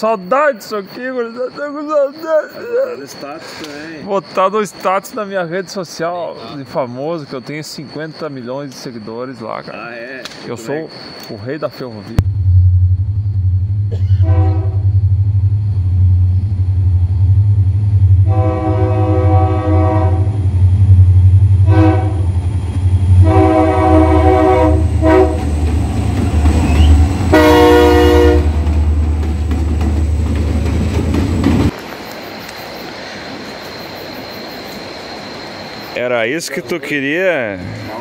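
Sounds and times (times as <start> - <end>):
locomotive engine rumble: 12.2 - 32.4
multi-tone air horn blasts: 14.1 - 14.9, 18.2 - 20.4, 21.6 - 22.3, 23.2 - 25.6, 26.7 - 28.6.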